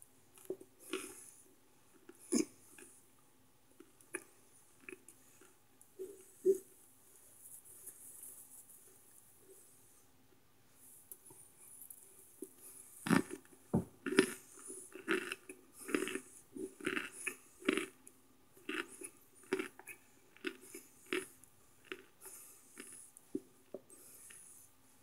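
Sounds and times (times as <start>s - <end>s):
crunchy chewing: 0.3s - 3.0s, 3.8s - 6.7s, 11.1s - 24.5s.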